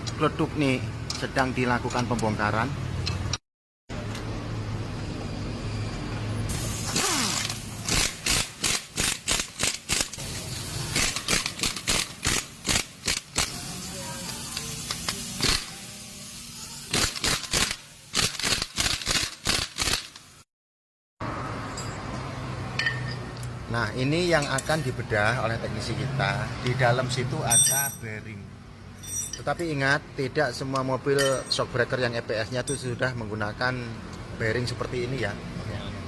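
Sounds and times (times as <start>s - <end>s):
tools knocking and clicking on metal: 21.7s - 23.6s, 27.5s - 28.1s, 29.0s - 29.8s, 30.8s - 31.7s.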